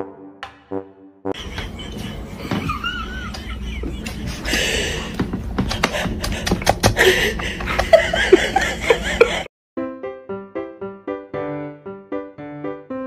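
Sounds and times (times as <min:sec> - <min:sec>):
soft human chuckling: 0:01.4 - 0:09.5.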